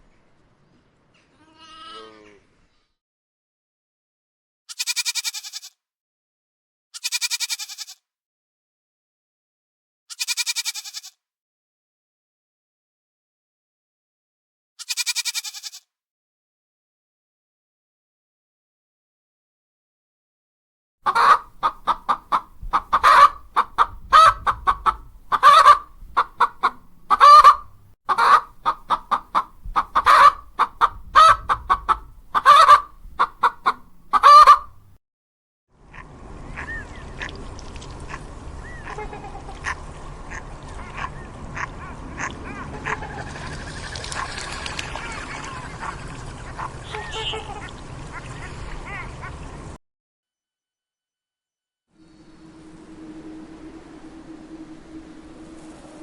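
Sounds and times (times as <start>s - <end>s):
waterfowl honking: 21.1s - 34.9s, 35.9s - 49.5s
faint bird calls: 44.8s - 49.4s.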